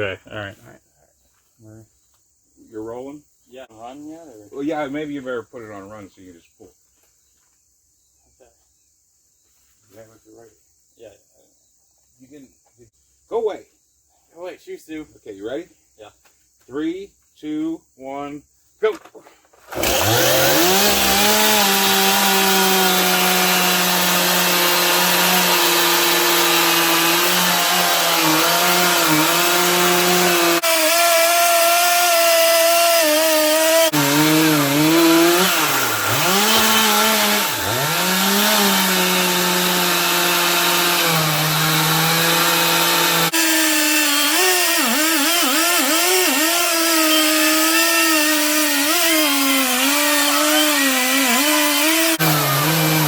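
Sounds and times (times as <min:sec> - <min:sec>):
chainsaw cutting logs: 0:19.6 - 0:53.0.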